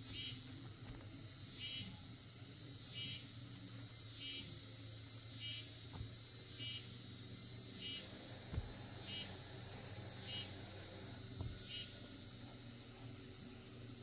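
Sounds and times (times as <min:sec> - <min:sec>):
insect chirping: 0:00.0 - 0:14.0
insect high buzz: 0:00.0 - 0:14.0
dull knocks: 0:08.5 - 0:08.8.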